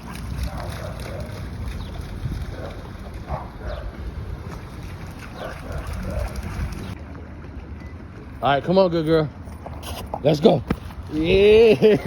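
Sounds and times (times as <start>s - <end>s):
wind rumbling on microphone: 0.0s - 8.2s.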